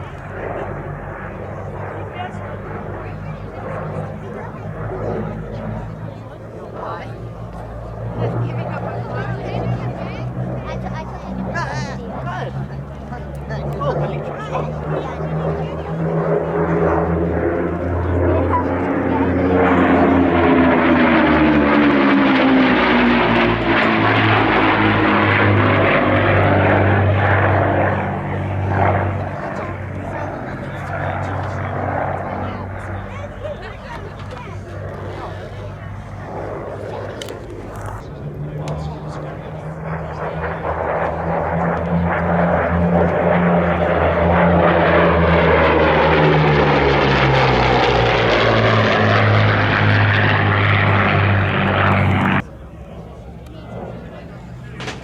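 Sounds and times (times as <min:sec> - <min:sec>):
propeller aircraft engines passing: 0:00.0 - 0:55.0.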